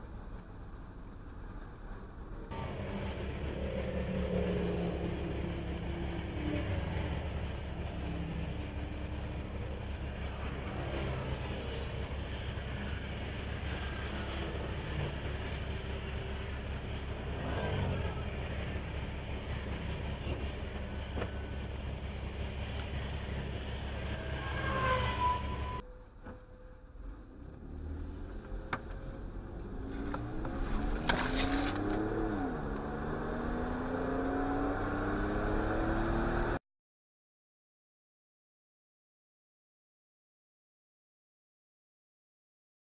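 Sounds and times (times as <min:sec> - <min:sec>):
car road and engine noise: 0:00.0 - 0:36.6
engine accelerating: 0:02.5 - 0:25.8, 0:27.0 - 0:36.6.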